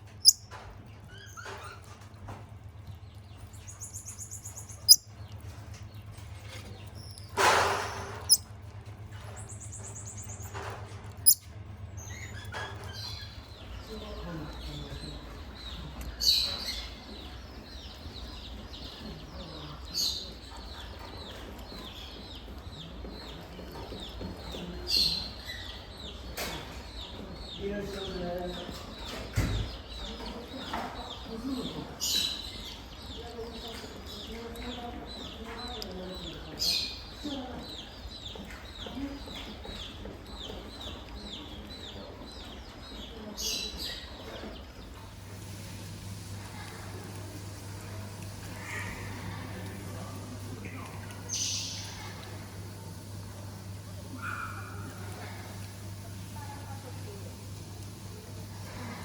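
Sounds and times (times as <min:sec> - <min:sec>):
animal chirping calls: 0:00.2 - 0:00.4, 0:03.8 - 0:05.0.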